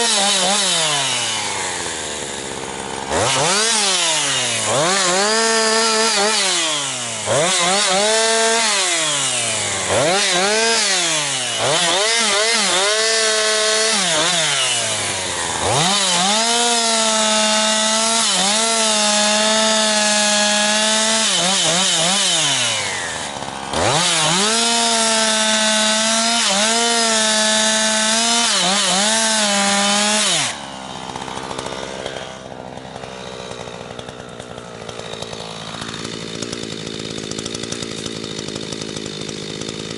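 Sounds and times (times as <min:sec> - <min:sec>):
chainsaw cutting firewood: 0:00.0 - 0:39.9.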